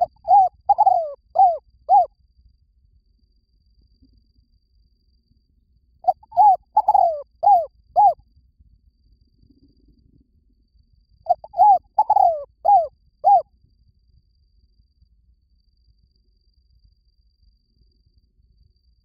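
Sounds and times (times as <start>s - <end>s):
dove cooing: 0.0s - 2.1s, 6.1s - 8.2s, 11.3s - 13.4s.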